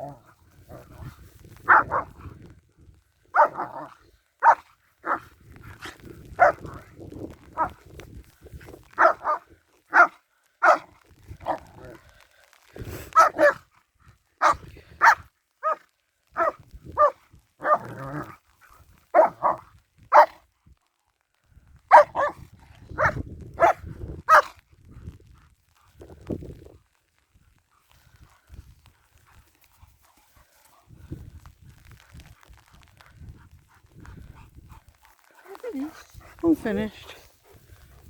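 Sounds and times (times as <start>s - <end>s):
dog barking: 1.7s - 2.1s, 3.3s - 5.2s, 6.4s - 6.7s, 9.0s - 11.6s, 13.2s - 13.6s, 14.4s - 15.8s, 16.4s - 17.9s, 19.2s - 20.4s, 21.9s - 22.4s, 23.0s - 24.5s.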